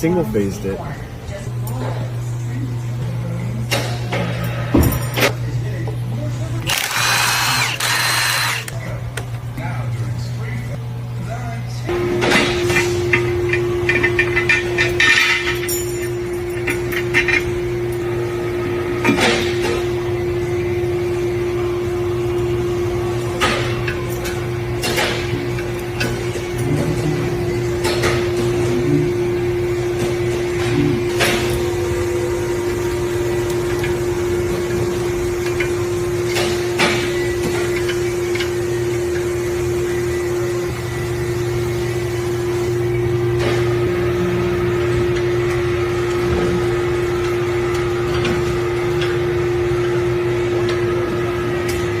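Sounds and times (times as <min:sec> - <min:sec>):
electric motor humming: 0:06.6 - 0:08.8.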